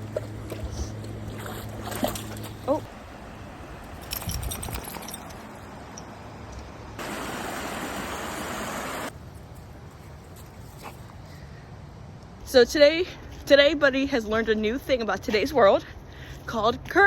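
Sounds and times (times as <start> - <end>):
water splashes: 0.0 - 5.2, 7.0 - 9.1
stream water rushing: 7.0 - 9.2.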